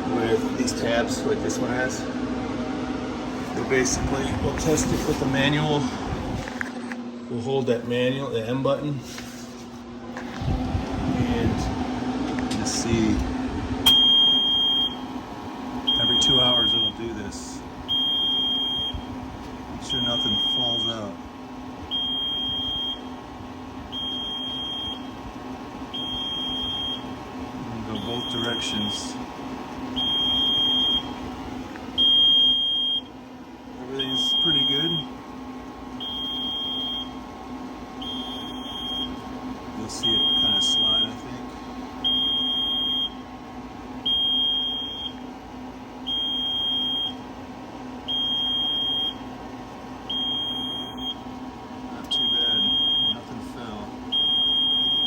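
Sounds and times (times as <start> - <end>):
incubator controller beeping: 0.0 - 6.4, 10.2 - 55.0
low motor hum: 0.0 - 55.0
electronic beeper tone: 15.9 - 17.0, 19.9 - 21.1, 27.9 - 29.1, 34.0 - 35.1, 52.2 - 53.2.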